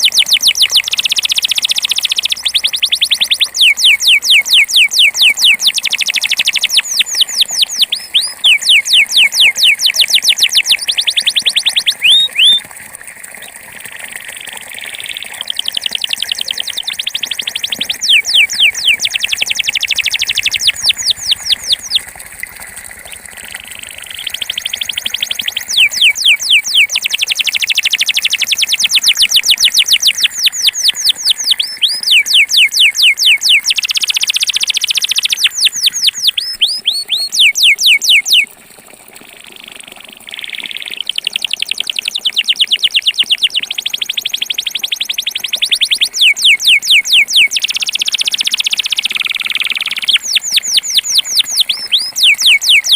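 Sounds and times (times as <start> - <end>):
canary trilling: 0.0 - 12.6, 15.0 - 22.0, 25.6 - 38.5, 45.0 - 52.9.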